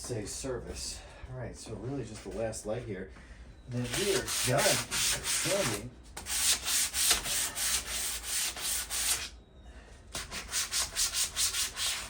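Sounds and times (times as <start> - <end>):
sandpaper rubbing on metal: 3.8 - 9.3, 10.2 - 12.0.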